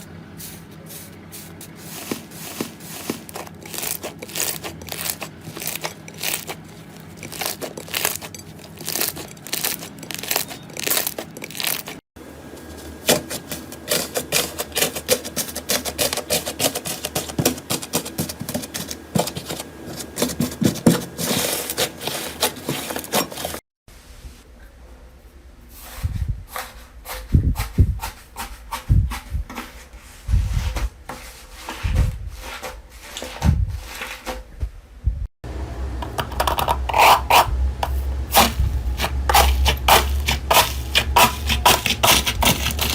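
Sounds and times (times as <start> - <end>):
dull low thumps: 35.0 - 35.3.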